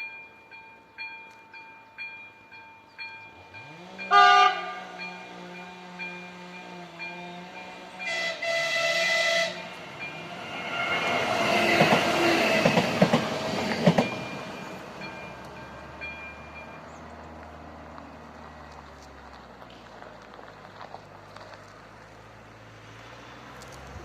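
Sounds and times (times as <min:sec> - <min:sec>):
train horn blasts: 0:03.6 - 0:10.2
train wheels clattering over rails: 0:09.6 - 0:16.2.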